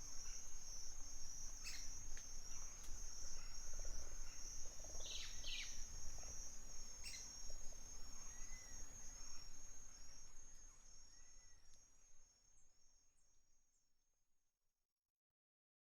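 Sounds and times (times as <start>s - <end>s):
high insect trill: 0.0s - 13.2s
soft whistled bird notes: 1.6s - 1.9s, 5.0s - 5.8s.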